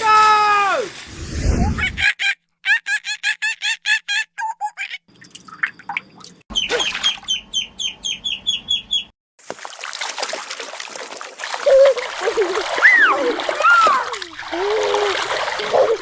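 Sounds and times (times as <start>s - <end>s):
water splashing: 5.1s - 7.3s, 9.4s - 16.0s
high chirping calls: 6.5s - 9.1s.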